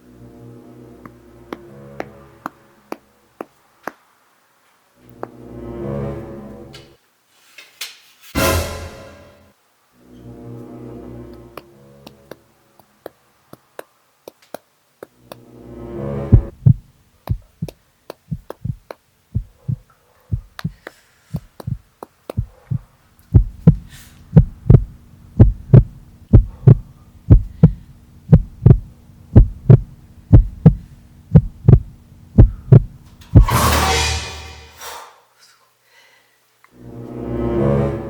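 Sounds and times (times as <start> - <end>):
loud sting: 8.4 - 9.5, 33.2 - 35.0
heartbeat thumps: 16.3 - 33.5.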